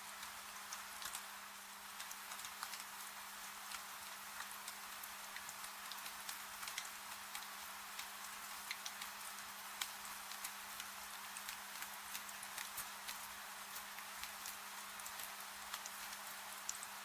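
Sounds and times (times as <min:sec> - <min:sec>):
faint steady hum: 0:00.0 - 0:17.0
wood fire crackling: 0:03.7 - 0:17.0.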